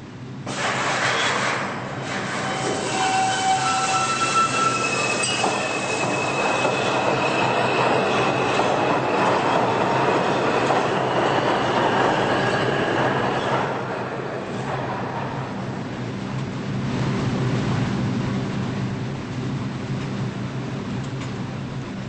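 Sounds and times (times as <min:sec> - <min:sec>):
subway train running on rails: 0:00.0 - 0:22.0
high wheel squeals: 0:02.0 - 0:09.6.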